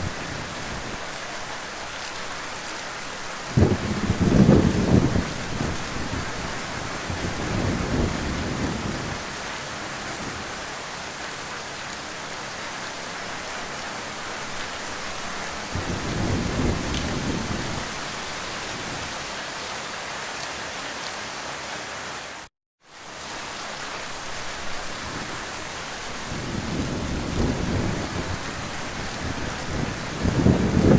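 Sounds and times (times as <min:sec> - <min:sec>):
heavy rain: 0:00.0 - 0:30.9
low thunder rumbling: 0:03.5 - 0:09.4, 0:15.1 - 0:19.2, 0:26.1 - 0:30.9.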